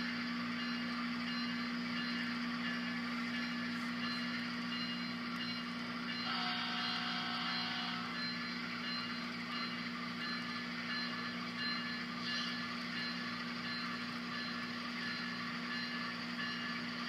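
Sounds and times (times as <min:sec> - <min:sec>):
diesel engine sound through small speaker: 0:00.0 - 0:17.0
locomotive horn: 0:06.2 - 0:08.2.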